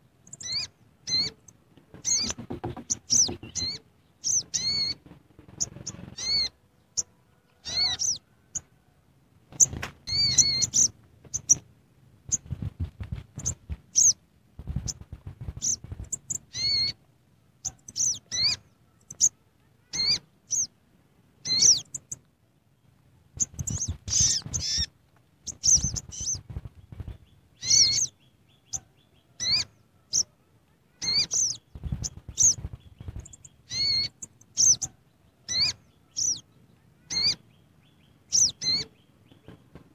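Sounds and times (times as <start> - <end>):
bird chirping: 0.0 - 8.8, 9.5 - 20.8, 21.4 - 39.9.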